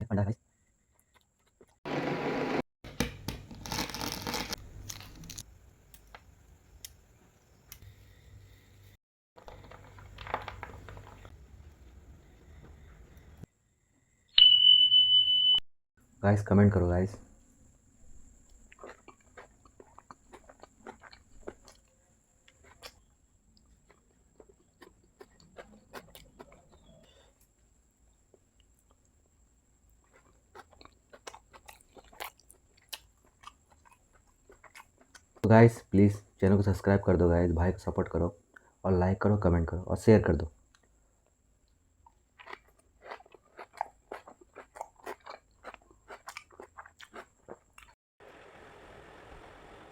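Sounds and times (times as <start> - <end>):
chewing with mouth clicks: 18.4 - 27.5, 30.0 - 35.4, 41.7 - 48.0.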